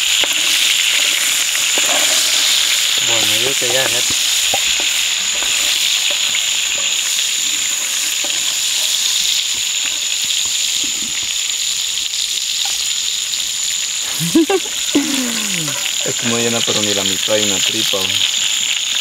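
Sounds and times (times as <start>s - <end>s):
shrimp sizzling in a pan: 0.0s - 19.0s.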